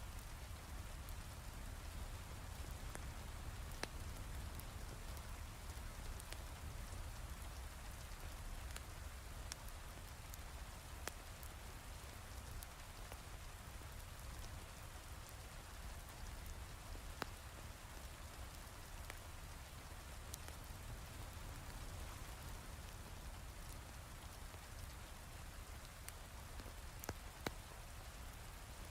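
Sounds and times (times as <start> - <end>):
wood fire crackling pops: 0.2 - 11.3, 18.0 - 28.1.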